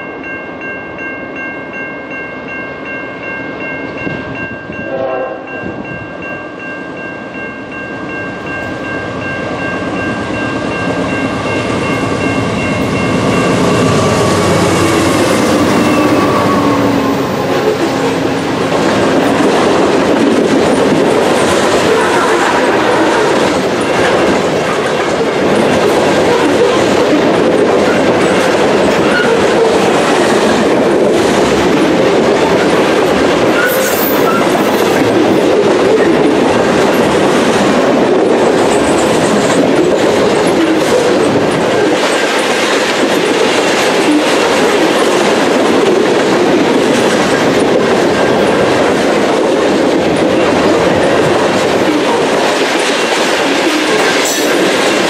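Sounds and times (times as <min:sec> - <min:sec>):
train wheels clattering on rail: 0:05.7 - 0:55.0
high wheel squeal: 0:13.2 - 0:18.2, 0:33.6 - 0:34.7.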